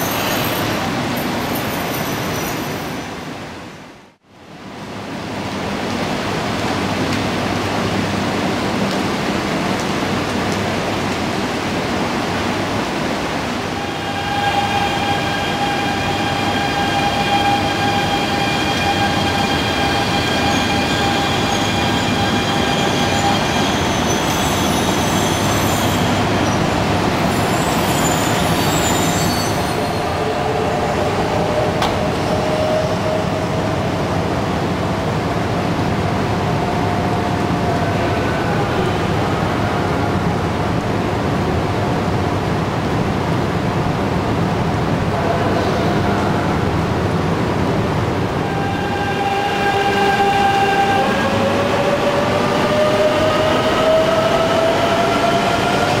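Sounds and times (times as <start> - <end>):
train rumble and rush: 0.0 - 56.0
high-pitched squeals: 13.7 - 31.6.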